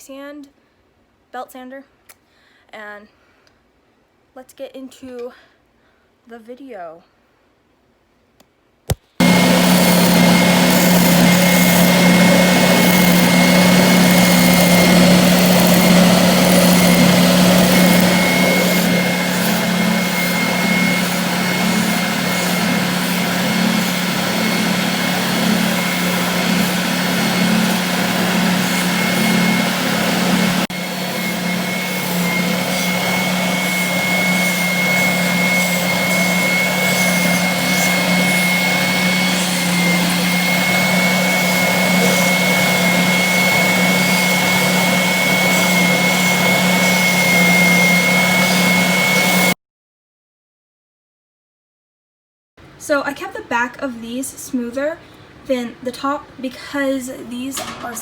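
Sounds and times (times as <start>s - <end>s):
belt sander running: 9.2s - 49.6s.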